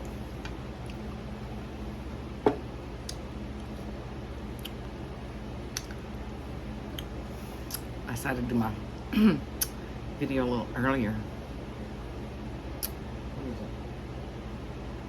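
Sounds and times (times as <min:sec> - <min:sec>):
steady low hum: 0:00.0 - 0:15.0
mouth clicks while eating: 0:04.6 - 0:04.8, 0:05.7 - 0:06.0, 0:07.7 - 0:07.9, 0:09.6 - 0:09.8, 0:12.8 - 0:13.0.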